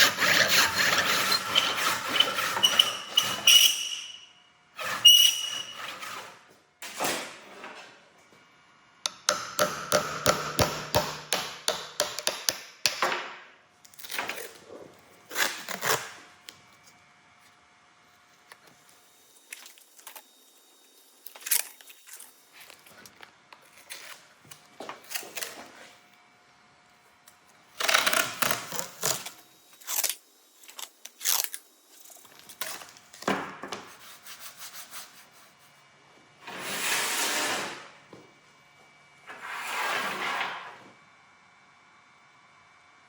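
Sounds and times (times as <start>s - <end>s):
knife blade scraping on abrasive: 0.0s - 4.2s.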